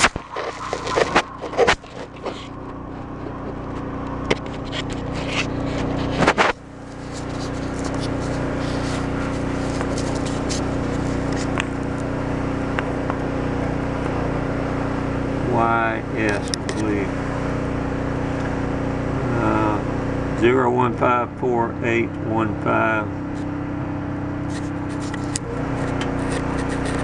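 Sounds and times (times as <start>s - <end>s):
scrapes and knocks: 0.0s - 12.0s, 24.4s - 27.0s
engine idling: 0.0s - 27.0s.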